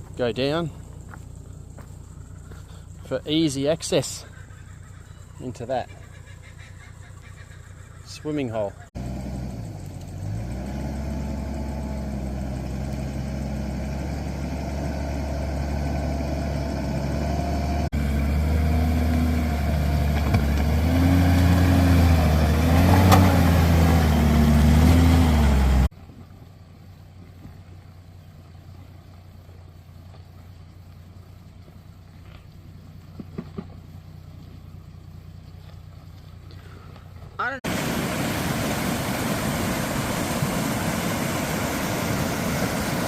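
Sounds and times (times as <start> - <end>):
vehicle engine revving: 8.9 - 25.9.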